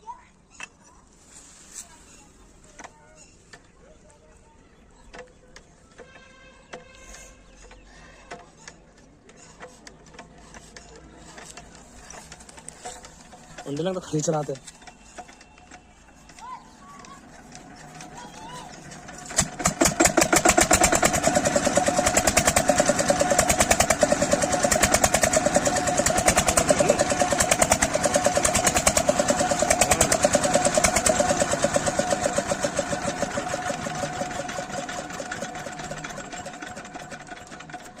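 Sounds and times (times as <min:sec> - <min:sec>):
diesel engine running: 0:11.1 - 0:38.0.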